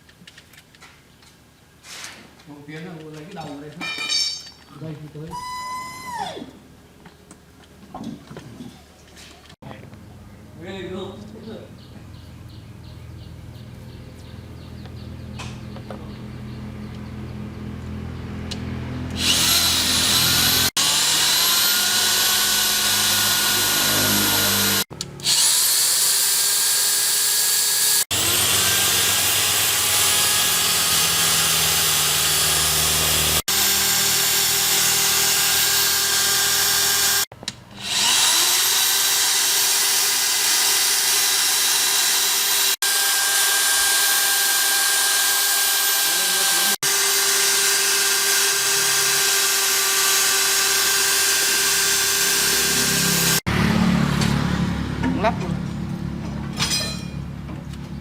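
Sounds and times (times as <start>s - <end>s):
power tool spinning at high speed: 19.0s - 53.7s.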